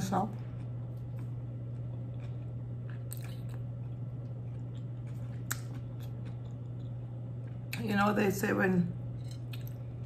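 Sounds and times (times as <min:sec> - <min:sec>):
steady low hum: 0:00.0 - 0:10.0
wet chewing sounds: 0:00.4 - 0:07.8.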